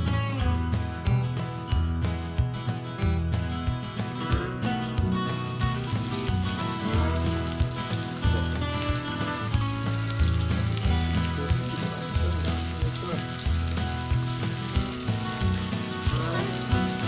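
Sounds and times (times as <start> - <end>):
background music with bass line: 0.0 - 17.0
steak sizzling in a pan: 4.9 - 17.0.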